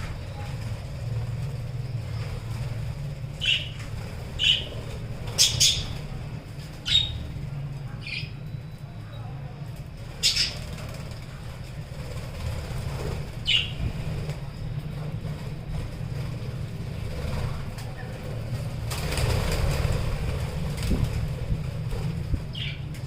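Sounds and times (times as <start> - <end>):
steady low rumble: 0.0 - 23.0
bird wings flapping: 10.2 - 23.0.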